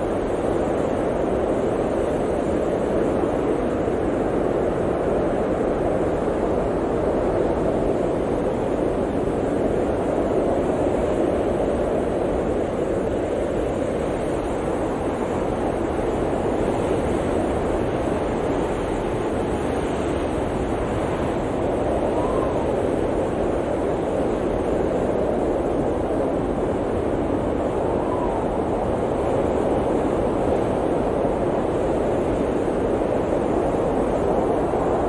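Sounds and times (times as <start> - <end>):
blizzard wind blowing: 0.0 - 35.0.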